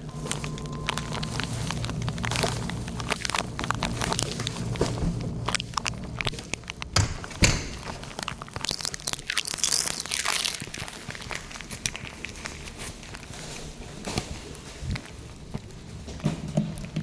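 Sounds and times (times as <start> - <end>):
rustling and crinkling: 0.0 - 17.0
knocks and clicks: 0.4 - 8.3.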